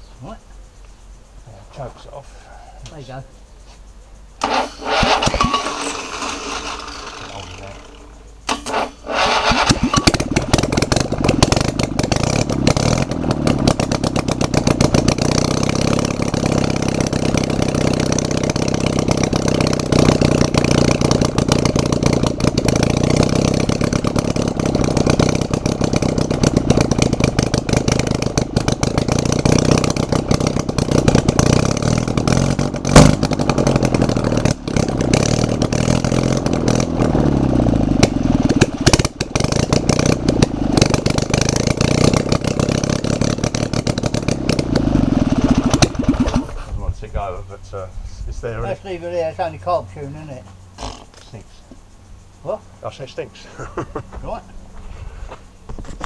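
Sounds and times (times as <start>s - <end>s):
engine starting and running: 4.4s - 46.8s
engine bang: 4.4s - 47.1s.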